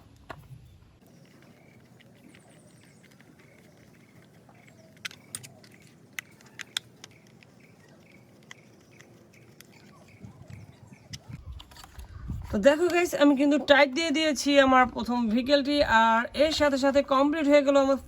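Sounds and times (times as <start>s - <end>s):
screwdriver clicking in plastic: 1.9s - 12.1s.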